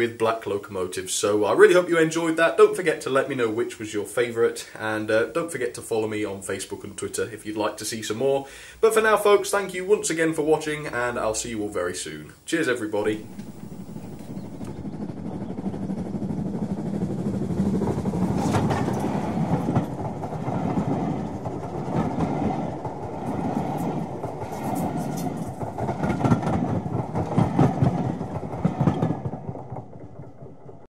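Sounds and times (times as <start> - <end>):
railway coaches rolling past: 13.1 - 30.8
wheels clicking over rail joints: 13.1 - 30.9.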